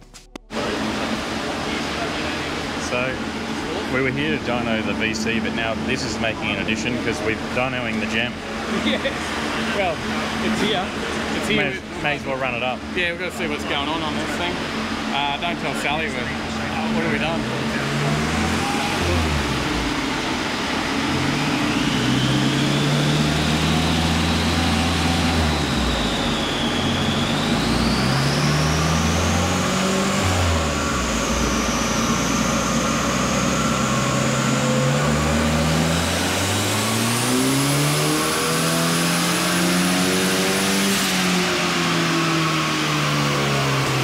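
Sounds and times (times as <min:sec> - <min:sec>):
car engine revving: 0:00.0 - 0:44.0
high whine: 0:00.0 - 0:44.0.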